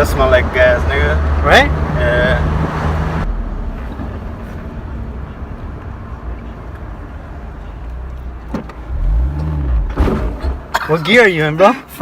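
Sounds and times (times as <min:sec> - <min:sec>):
car engine rumble from inside: 0:03.1 - 0:10.8.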